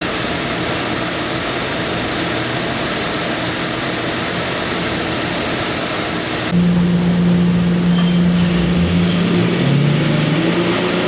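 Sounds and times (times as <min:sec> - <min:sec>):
engine idling: 0:00.0 - 0:08.9.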